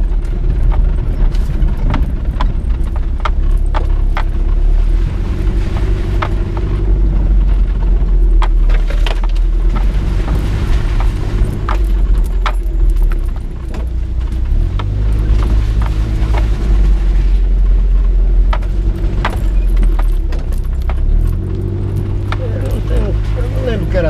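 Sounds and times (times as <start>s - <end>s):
engine and road rumble: 0.0s - 24.0s.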